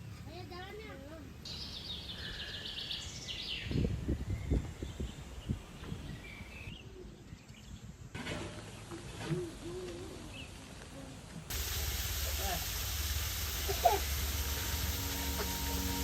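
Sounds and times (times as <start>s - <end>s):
small birds chirping: 0.0s - 8.0s.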